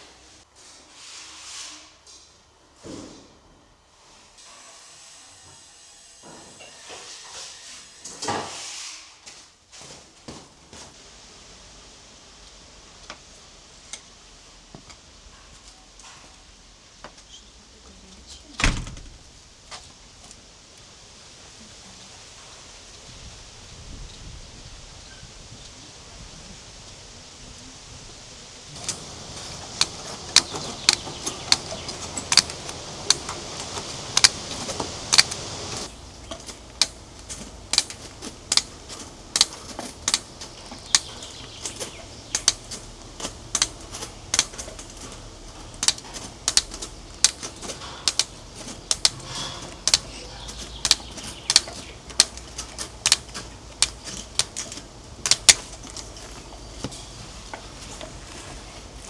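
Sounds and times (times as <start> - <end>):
steady hiss: 28.4 - 59.0.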